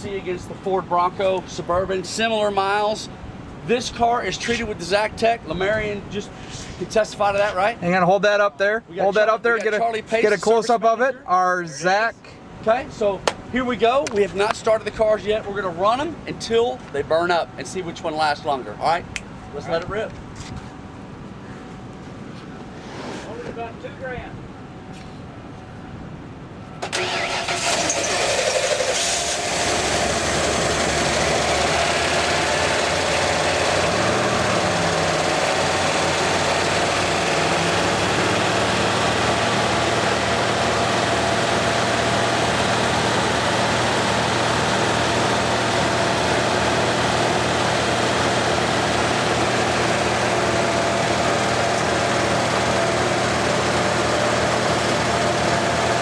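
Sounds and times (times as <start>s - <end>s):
truck engines running loudly: 26.9s - 56.0s.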